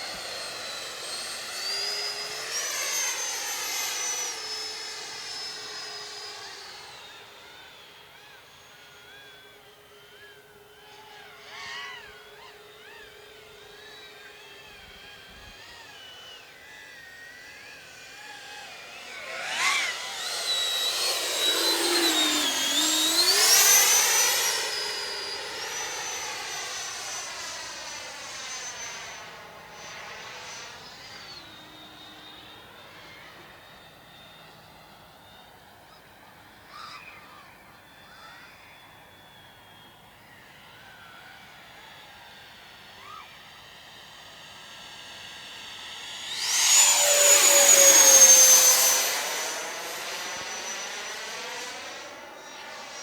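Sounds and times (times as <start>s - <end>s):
electric ducted-fan jet whine: 0.0s - 53.0s.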